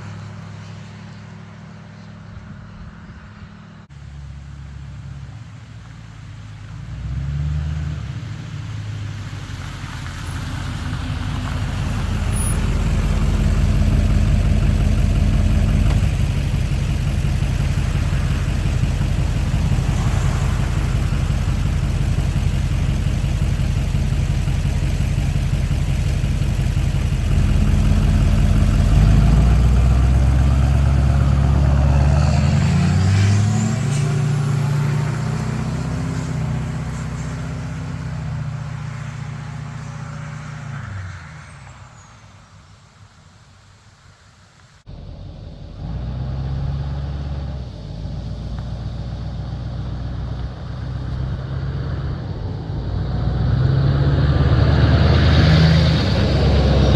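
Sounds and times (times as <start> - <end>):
diesel engine revving: 6.7 - 41.7, 44.9 - 56.9
turbo whine: 11.2 - 32.3.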